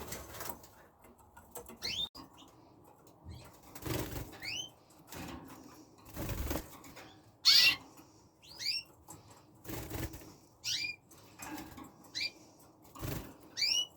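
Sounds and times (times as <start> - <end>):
canaries chirping: 0.0 - 13.9
wings flapping: 3.5 - 4.6, 6.1 - 7.0, 9.6 - 10.4, 12.9 - 13.8.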